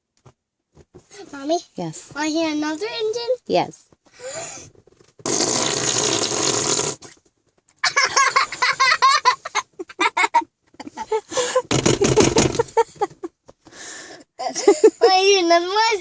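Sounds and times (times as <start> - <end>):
rasping arm fart: 4.6 - 7.2, 11.7 - 12.8
laughter: 7.8 - 13.4, 14.4 - 15.1.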